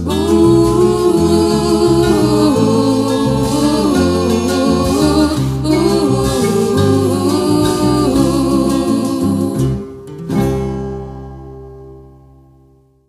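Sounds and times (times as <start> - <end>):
woman singing: 0.0 - 9.9
instrumental backing: 0.0 - 12.8.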